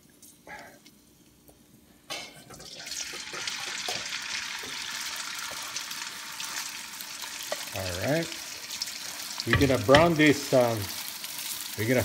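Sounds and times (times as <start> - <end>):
oil sizzling in a wok: 2.5 - 12.0.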